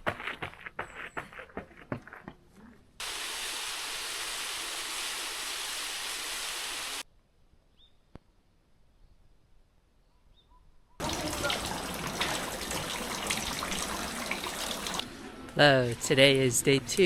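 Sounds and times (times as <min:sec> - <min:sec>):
faint bird chirps: 0:07.7 - 0:08.2, 0:10.0 - 0:11.0
rushing water: 0:11.0 - 0:15.0.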